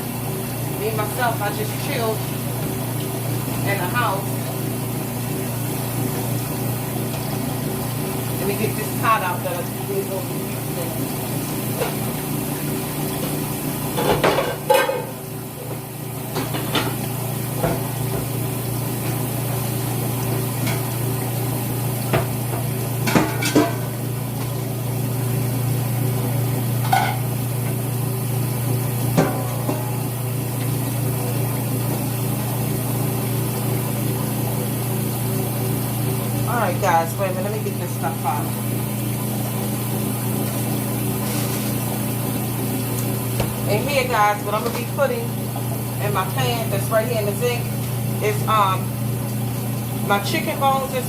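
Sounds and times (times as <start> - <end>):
washing machine humming: 0.0 - 51.0
metal pots and pans clanking: 14.0 - 15.2, 23.0 - 23.9, 26.8 - 27.3.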